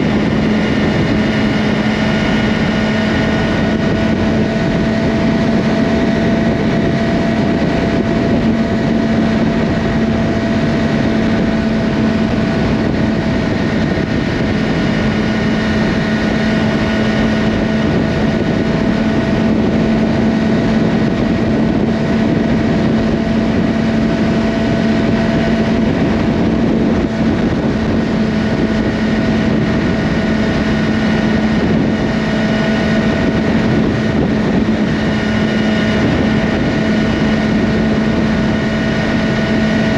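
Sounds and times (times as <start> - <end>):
motorcycle engine cruising: 0.0 - 39.9
wind noise: 0.0 - 39.9.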